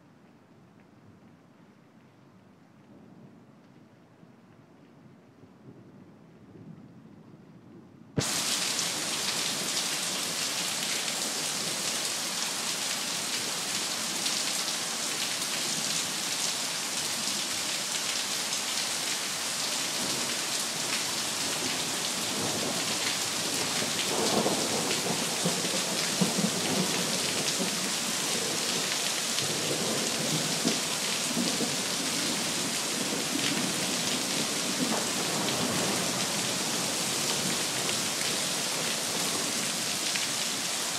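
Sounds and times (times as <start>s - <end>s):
heavy rain pouring: 8.2s - 40.9s.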